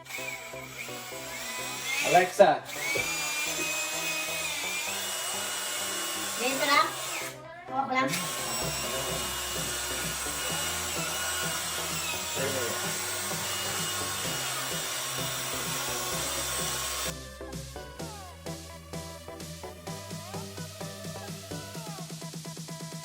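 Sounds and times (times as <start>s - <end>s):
power tool running: 0.0s - 22.2s
electronic music with a beat: 6.4s - 23.0s.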